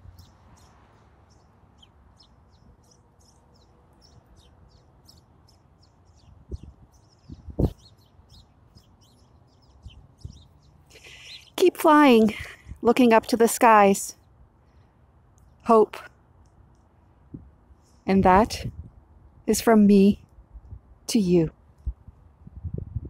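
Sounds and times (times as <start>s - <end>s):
small birds chirping: 0.0s - 16.9s.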